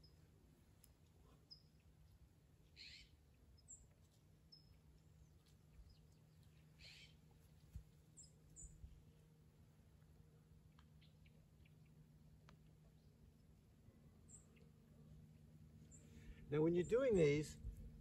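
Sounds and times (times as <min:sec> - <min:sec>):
faint high bird chirps: 0:00.0 - 0:00.3, 0:01.2 - 0:07.2, 0:08.1 - 0:09.0, 0:10.7 - 0:13.6, 0:14.2 - 0:17.7
low steady hum: 0:00.0 - 0:18.0.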